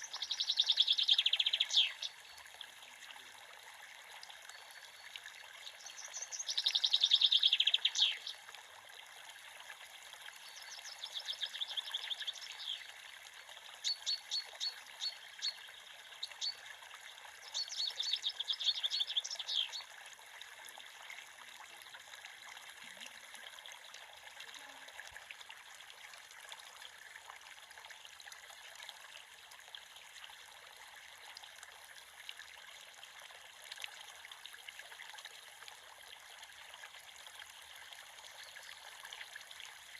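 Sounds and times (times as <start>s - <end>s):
songbird singing: 0.0s - 2.4s, 4.5s - 8.4s, 10.4s - 12.9s, 13.8s - 16.6s, 17.4s - 19.8s
creek water running: 0.0s - 39.9s.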